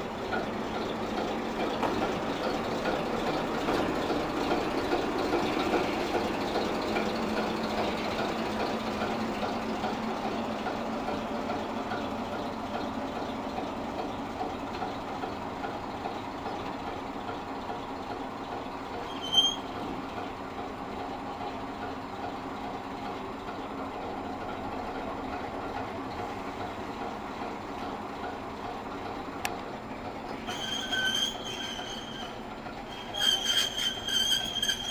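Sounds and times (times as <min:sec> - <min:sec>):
diesel locomotive engine running: 0:00.0 - 0:34.9
high squeal: 0:19.1 - 0:19.8, 0:30.4 - 0:34.9.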